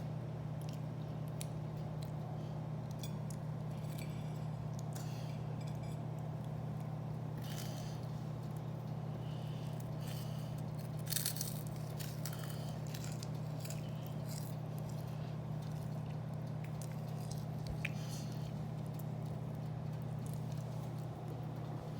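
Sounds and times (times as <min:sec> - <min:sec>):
steady low hum: 0:00.0 - 0:21.9
crunchy chewing: 0:00.5 - 0:21.9.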